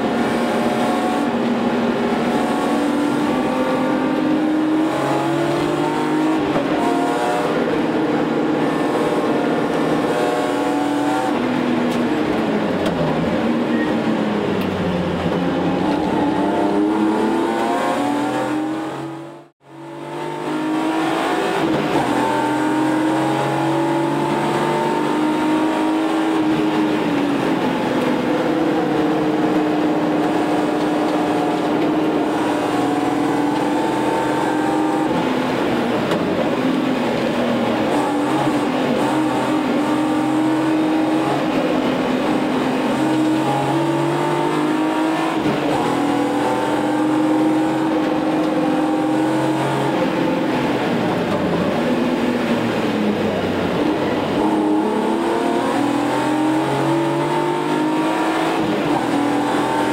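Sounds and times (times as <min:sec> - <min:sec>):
car engine revving from inside cabin: 0:00.1 - 0:11.4, 0:15.1 - 0:27.1, 0:28.0 - 0:35.2, 0:42.2 - 0:50.3, 0:54.2 - 0:59.9.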